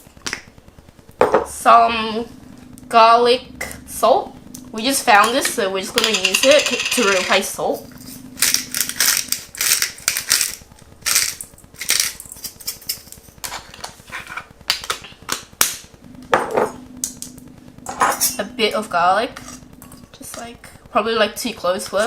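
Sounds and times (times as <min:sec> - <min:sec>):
salt clicking and rattling into bowl: 0:08.7 - 0:13.6.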